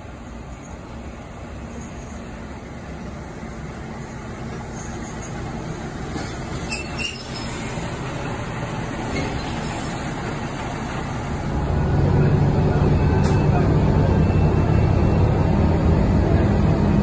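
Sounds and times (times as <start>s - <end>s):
railcar engine and wheels: 0.0s - 17.0s
high wheel squeal: 4.7s - 5.5s, 6.6s - 7.8s.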